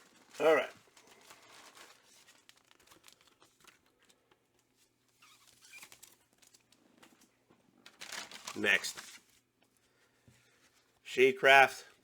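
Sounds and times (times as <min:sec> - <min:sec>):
comic books rustling: 0:00.0 - 0:11.0.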